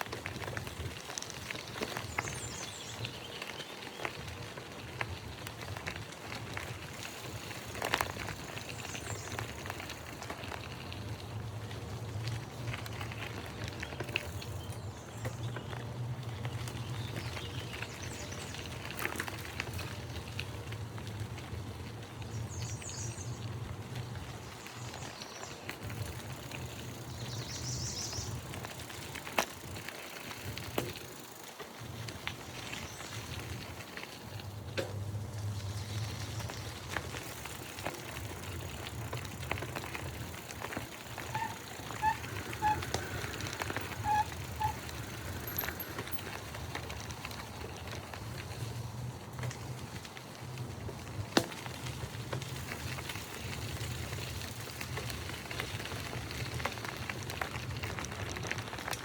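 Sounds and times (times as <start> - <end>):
birds chirping: 24.2 - 28.6.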